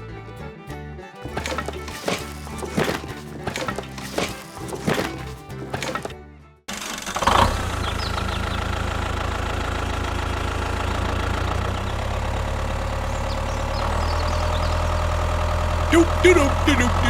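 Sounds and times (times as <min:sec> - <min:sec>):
short clunk: 0:01.2 - 0:06.2.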